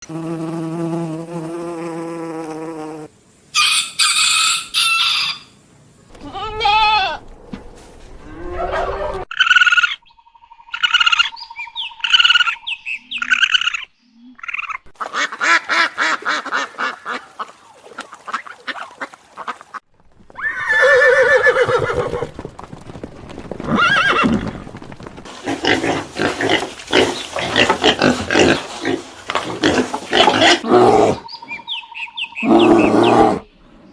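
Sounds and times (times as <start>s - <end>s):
farm animal calls: 25.3s - 33.5s.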